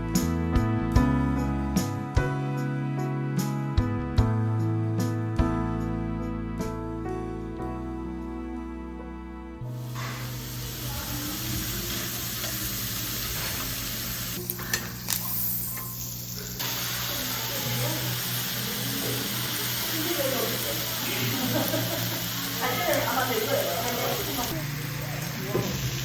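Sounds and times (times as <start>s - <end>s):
food sizzling in a pan: 9.7s - 26.0s.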